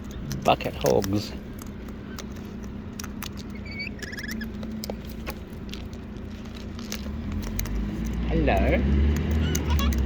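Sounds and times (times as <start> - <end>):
beaks clicking and tapping: 0.0 - 6.0, 6.8 - 10.0
faint high chirps: 3.5 - 4.5.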